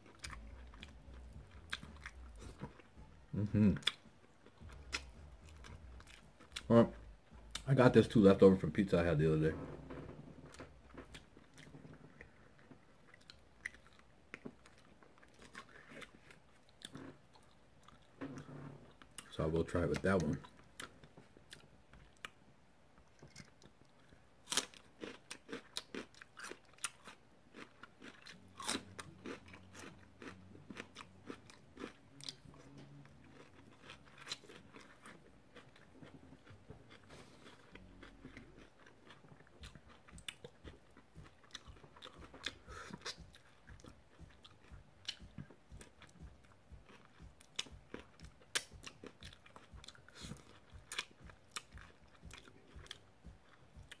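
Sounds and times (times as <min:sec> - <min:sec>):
chewing and biting chicken wings: 0:00.0 - 0:08.1, 0:23.2 - 0:54.0.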